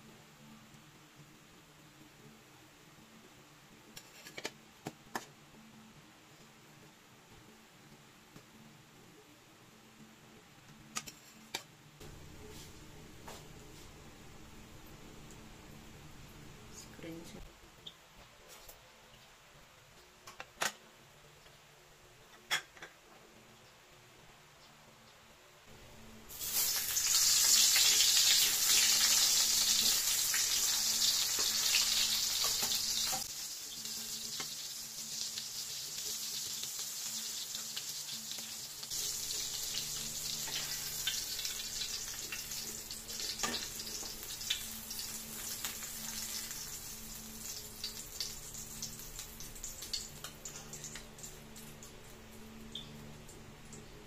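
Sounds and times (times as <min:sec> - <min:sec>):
hotdogs sizzling in hot oil: 0:25.9 - 0:52.9.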